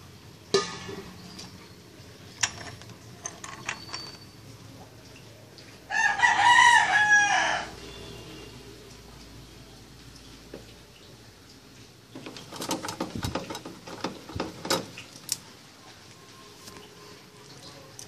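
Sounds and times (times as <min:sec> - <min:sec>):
rooster crowing: 0:05.9 - 0:08.2.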